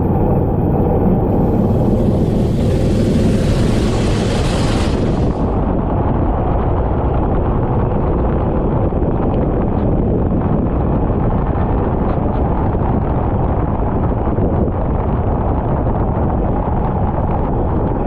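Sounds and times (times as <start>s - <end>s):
wind buffeting microphone: 0.0s - 18.0s
kart engine rumble: 0.9s - 6.4s.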